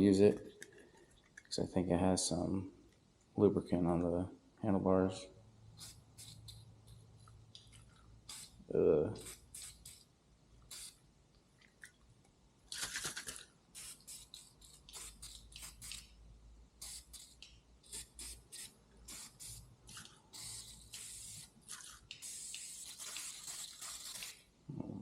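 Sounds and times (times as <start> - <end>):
aerosol can spraying: 5.8 - 6.6, 8.3 - 8.6, 9.2 - 10.1, 10.7 - 11.0, 12.9 - 16.1, 16.8 - 24.4.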